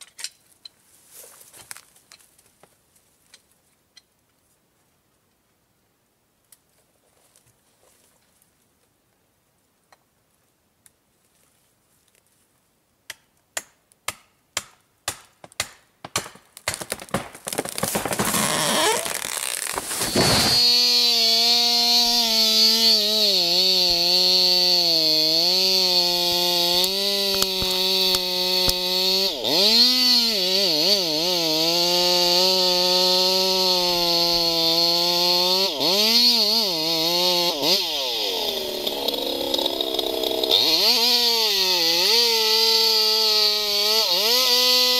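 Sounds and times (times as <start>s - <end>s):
chainsaw cutting at high revs: 16.7s - 44.9s.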